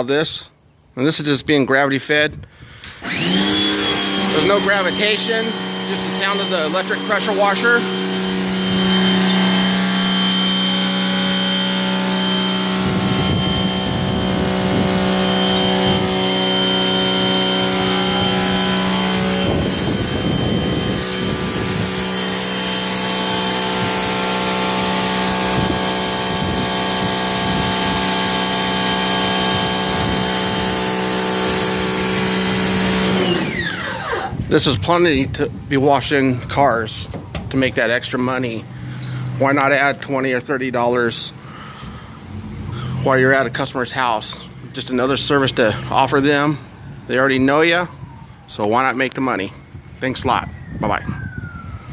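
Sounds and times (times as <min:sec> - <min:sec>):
pressure washer humming with whine: 0:02.8 - 0:34.9.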